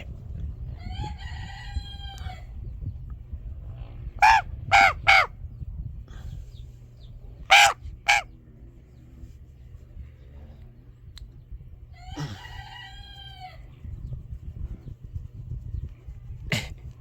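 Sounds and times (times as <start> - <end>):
raven cawing harshly: 4.2 - 5.3, 7.5 - 8.3.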